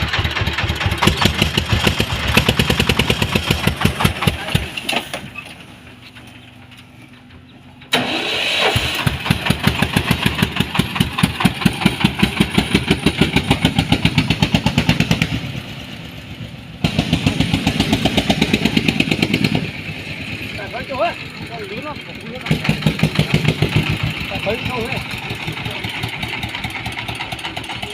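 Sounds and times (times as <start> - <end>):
vehicle engine chugging: 0.0 - 27.9.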